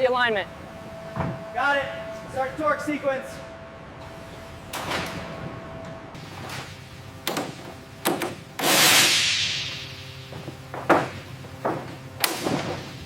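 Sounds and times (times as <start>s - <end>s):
loud hiss: 8.6s - 10.2s.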